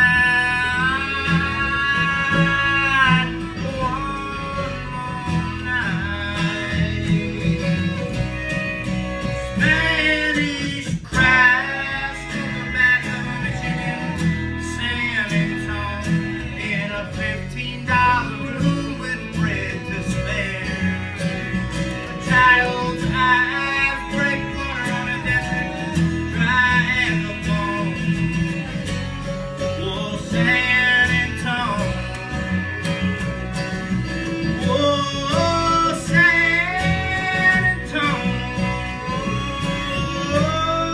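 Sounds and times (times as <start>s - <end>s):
acoustic guitar rhythm: 0.0s - 40.9s
bass: 0.0s - 40.9s.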